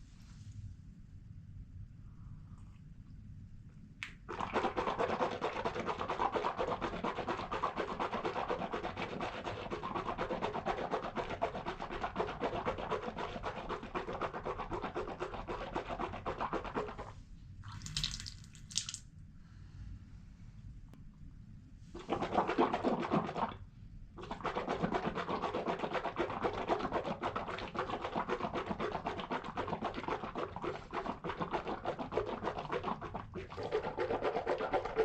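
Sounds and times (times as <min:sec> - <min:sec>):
person gargling water: 0:04.3 - 0:04.8, 0:22.0 - 0:23.6, 0:25.9 - 0:35.0.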